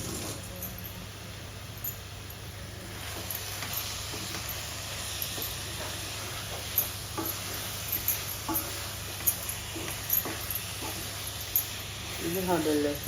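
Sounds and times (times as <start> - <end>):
vegetables sizzling in a pan: 0.0 - 13.0
spoon scraping against pan: 2.9 - 12.2.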